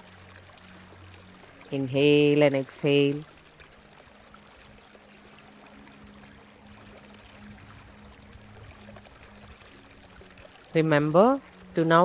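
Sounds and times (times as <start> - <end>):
small stream trickling: 0.0 - 12.0.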